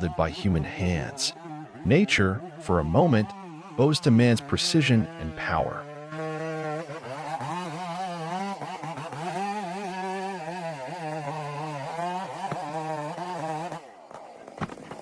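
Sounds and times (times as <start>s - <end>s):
chainsaw cutting log: 0.0s - 15.0s.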